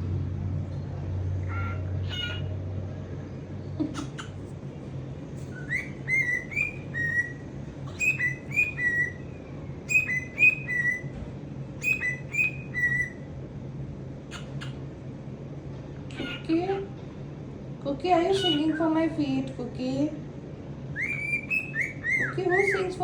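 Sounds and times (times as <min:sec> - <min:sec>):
cockatiel whistling a tune: 0:05.5 - 0:11.1, 0:11.8 - 0:13.2, 0:20.9 - 0:23.0.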